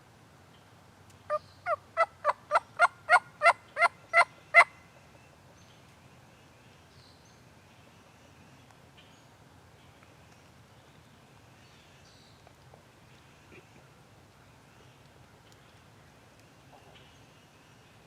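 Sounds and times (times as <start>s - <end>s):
turkey yelps: 1.6s - 4.7s.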